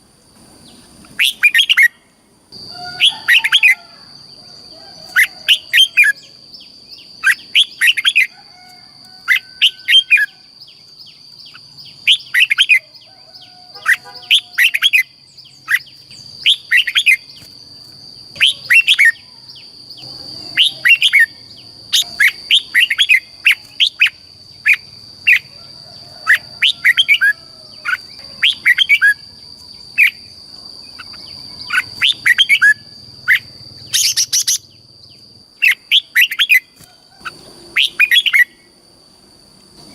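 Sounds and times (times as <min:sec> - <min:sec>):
bird whistling song: 0:01.2 - 0:02.0, 0:02.7 - 0:03.8, 0:05.1 - 0:08.3, 0:09.2 - 0:17.5, 0:18.3 - 0:25.5, 0:26.3 - 0:29.3, 0:30.9 - 0:34.8, 0:35.6 - 0:38.7.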